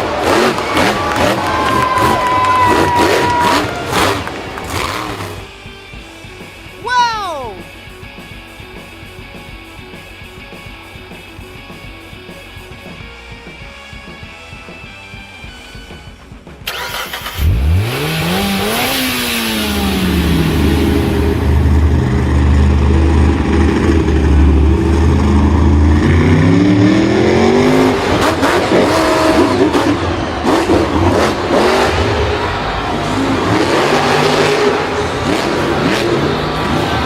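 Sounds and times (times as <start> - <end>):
vehicle engine revving: 0.0 - 6.2, 15.0 - 37.0.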